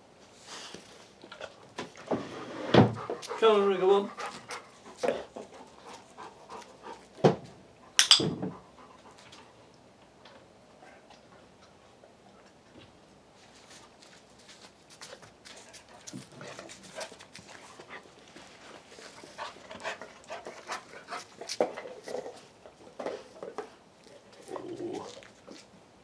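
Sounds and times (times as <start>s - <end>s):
dog panting: 2.8s - 9.6s, 15.6s - 22.4s.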